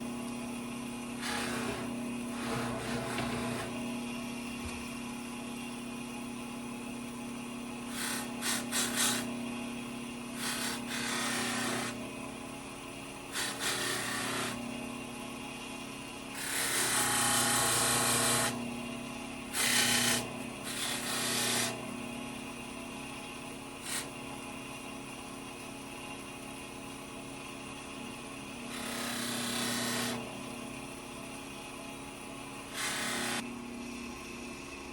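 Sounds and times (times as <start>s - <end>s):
power tool humming: 0.0s - 4.8s, 7.8s - 24.2s, 28.4s - 34.3s
harsh power tool bursts: 1.2s - 3.8s, 10.4s - 12.0s, 13.3s - 14.6s, 16.4s - 18.6s, 19.5s - 21.8s, 28.7s - 30.2s, 32.7s - 33.4s.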